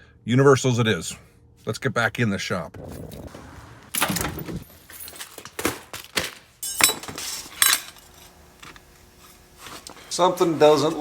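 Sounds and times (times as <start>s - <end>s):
metallic clinks and knocks: 6.6s - 8.4s.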